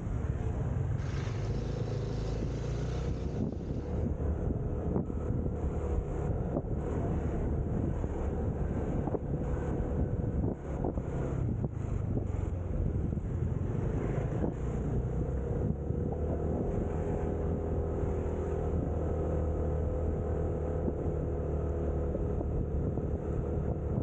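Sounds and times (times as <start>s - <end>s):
motorcycle engine drone: 0.0s - 24.0s
wind rushing over microphone: 0.0s - 24.0s.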